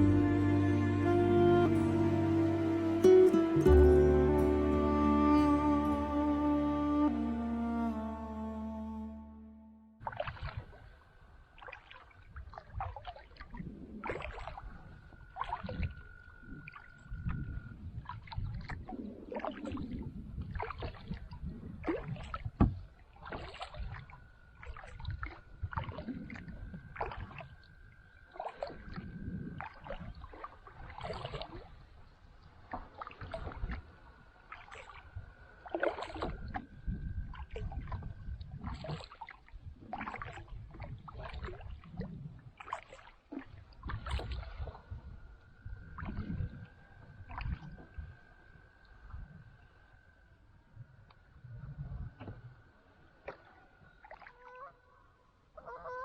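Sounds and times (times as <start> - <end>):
kayak paddle splashing: 10.0 - 48.4, 52.1 - 56.0.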